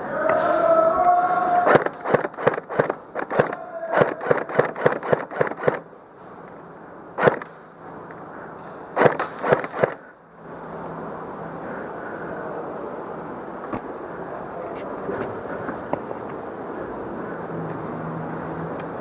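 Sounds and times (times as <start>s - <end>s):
airsoft gun shots: 1.6s - 5.9s, 7.2s - 7.6s, 9.0s - 10.0s.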